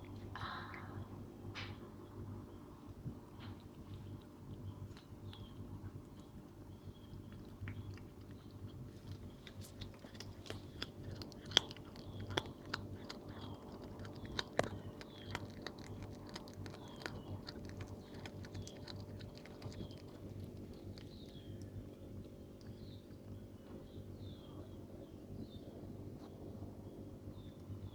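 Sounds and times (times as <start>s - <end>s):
cat chewing and crunching: 2.8s - 24.4s.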